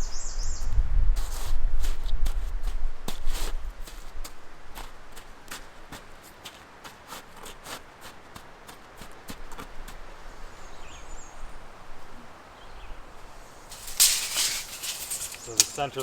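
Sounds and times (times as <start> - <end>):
rustling scrape: 13.5 - 16.0.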